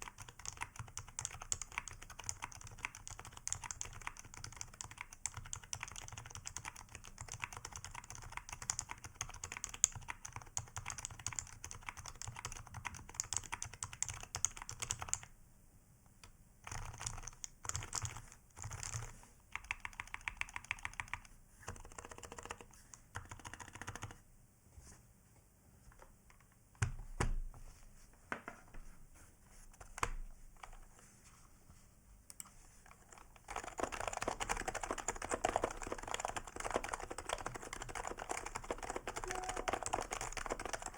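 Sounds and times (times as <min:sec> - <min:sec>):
keyboard typing: 0:00.0 - 0:15.3, 0:16.6 - 0:24.2, 0:32.3 - 0:40.9.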